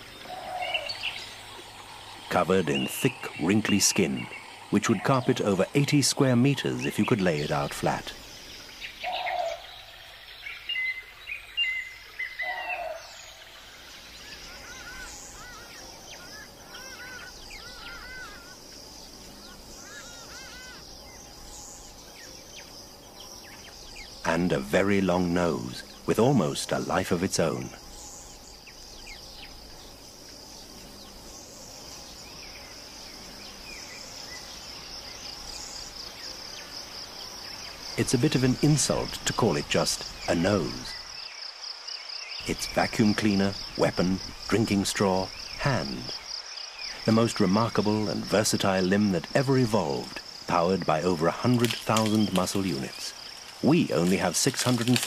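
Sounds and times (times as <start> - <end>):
short low bird calls: 0.0 - 6.0, 6.8 - 26.6
repeated arching bird chirps: 0.0 - 54.3
faint background hiss: 0.0 - 55.0
insect chorus: 0.0 - 55.0.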